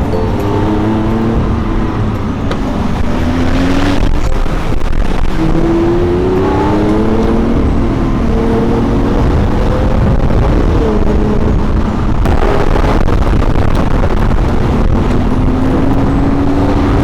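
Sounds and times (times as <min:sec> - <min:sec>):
rush of noise: 0:00.0 - 0:17.0
sports car engine accelerating: 0:00.0 - 0:17.0.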